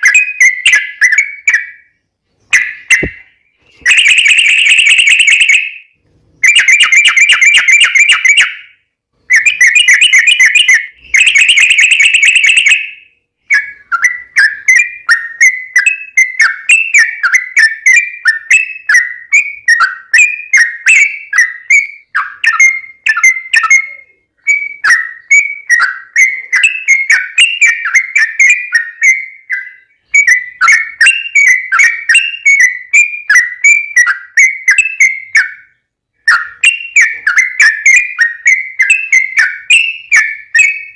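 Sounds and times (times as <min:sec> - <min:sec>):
bird whistled notes: 0:00.0 - 0:08.7, 0:09.3 - 0:40.9.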